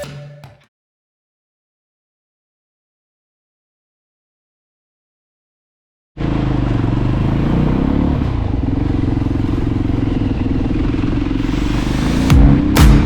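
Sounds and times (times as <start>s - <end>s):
electronic music with loud beats: 0.0s - 0.6s, 11.4s - 13.0s
motorcycle engine running: 6.2s - 13.0s.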